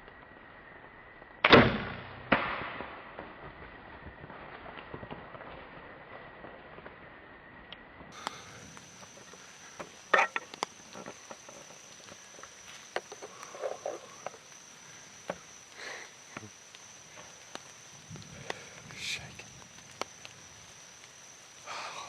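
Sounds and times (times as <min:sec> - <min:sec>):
loud sharp snap: 0:01.4 - 0:02.9
high-pitched insect drone: 0:07.1 - 0:22.0.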